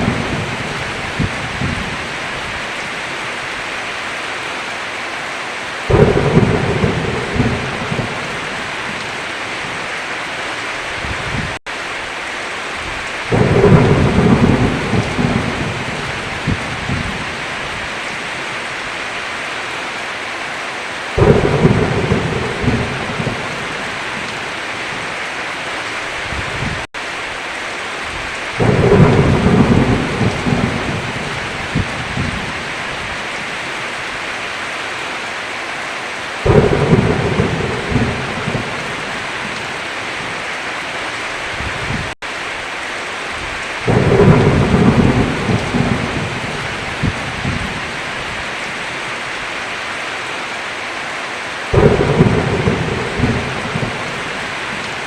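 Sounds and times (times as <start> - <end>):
thunder rumbling: 0.0 - 2.8, 5.9 - 9.9, 12.8 - 18.2, 21.2 - 25.2, 28.0 - 33.2, 36.4 - 40.4, 43.4 - 48.9, 51.7 - 55.0
heavy rain on a roof: 0.0 - 55.0.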